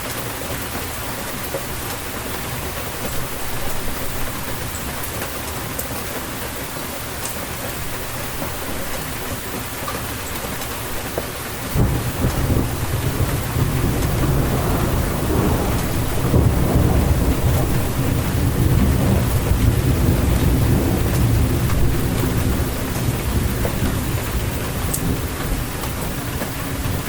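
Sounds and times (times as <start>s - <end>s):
steady rain: 0.0s - 27.0s
rolling thunder rumble: 11.6s - 27.0s.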